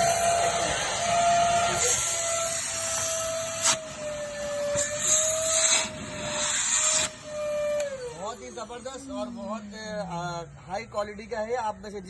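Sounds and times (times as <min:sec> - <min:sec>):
rushing air hiss: 0:00.0 - 0:08.5
vacuum cleaner motor whine: 0:00.0 - 0:09.8.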